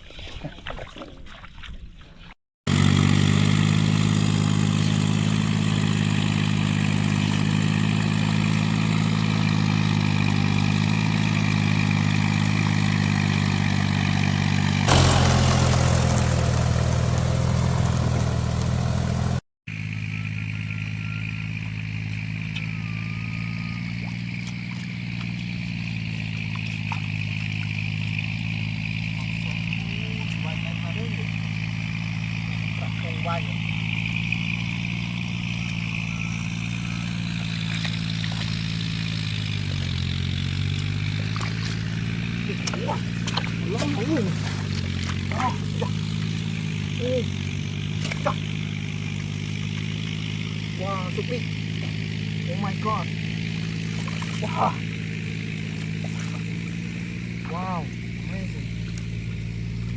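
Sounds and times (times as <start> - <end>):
small engine running: 2.7 - 59.9.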